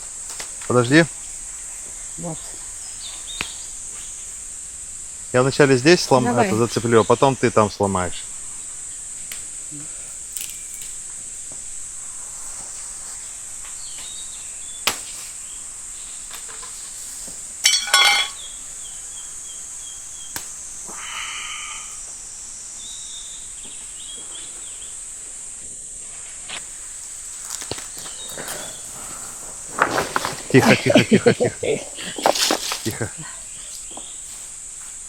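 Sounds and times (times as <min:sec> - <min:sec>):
crickets droning: 0:00.0 - 0:35.0
branch snapping: 0:09.3 - 0:09.5, 0:10.3 - 0:11.0, 0:14.8 - 0:15.3, 0:20.3 - 0:20.6, 0:27.4 - 0:28.5.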